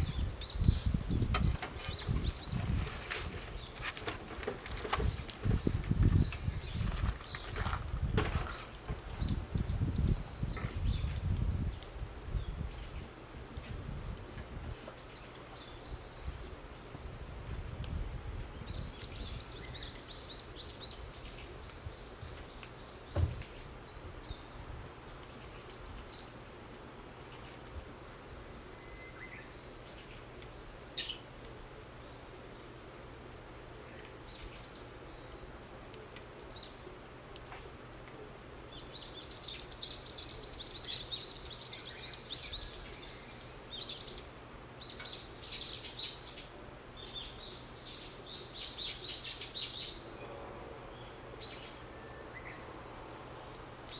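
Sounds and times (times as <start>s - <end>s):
small birds chirping: 0.0s - 26.4s, 27.0s - 27.9s, 28.6s - 31.4s, 32.0s - 37.8s, 38.6s - 53.9s.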